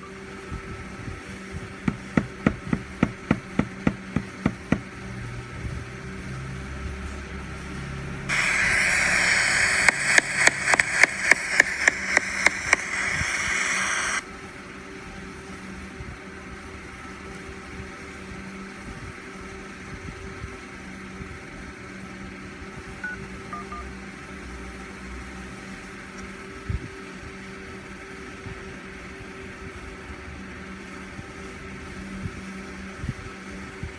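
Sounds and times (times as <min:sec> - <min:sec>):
electrical hum: 0:00.5 - 0:05.8, 0:08.3 - 0:14.2
knock: 0:01.9 - 0:04.9.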